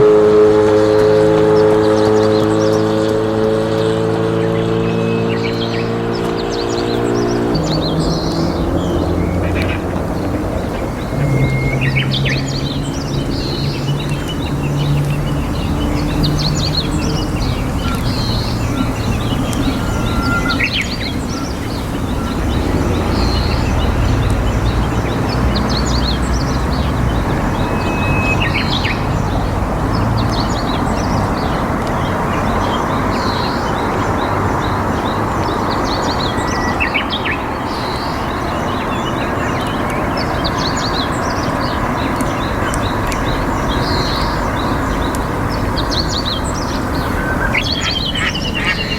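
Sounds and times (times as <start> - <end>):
steady rushing noise: 0.0 - 48.9
small birds chirping: 0.8 - 48.9
bird whistle: 10.6 - 15.2, 17.8 - 23.5, 27.3 - 29.1.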